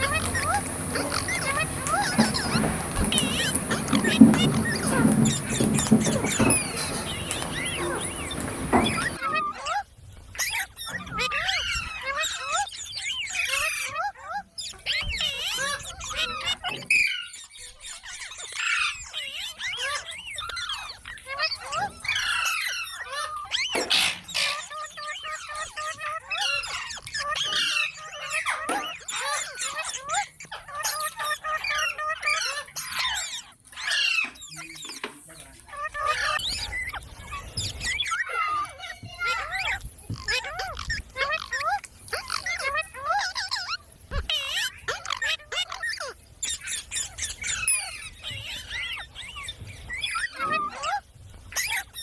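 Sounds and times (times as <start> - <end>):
parrot chattering and squawking: 0.0 - 9.2.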